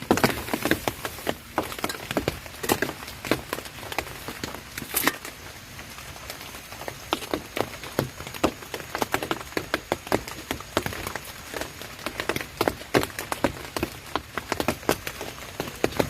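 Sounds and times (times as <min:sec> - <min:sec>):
raindrops tapping on a surface: 0:00.0 - 0:16.0
steady rain hiss: 0:00.0 - 0:16.0.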